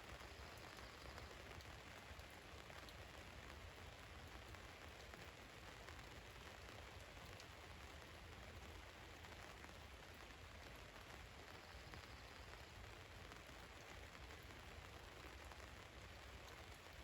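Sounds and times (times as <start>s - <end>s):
faint rain on a van: 0.0s - 17.0s.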